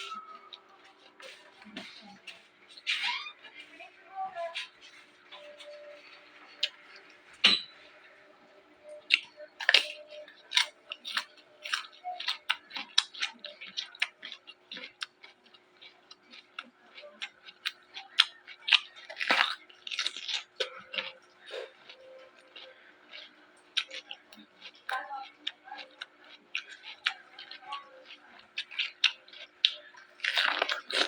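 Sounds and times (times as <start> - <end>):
crunching raw vegetables: 9.0 - 31.0.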